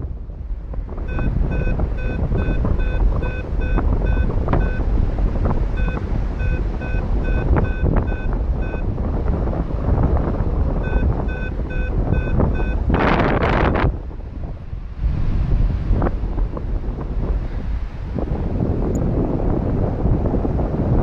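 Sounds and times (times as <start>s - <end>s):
wind rumble on microphone: 0.0s - 21.0s
variometer beeping: 1.0s - 13.1s.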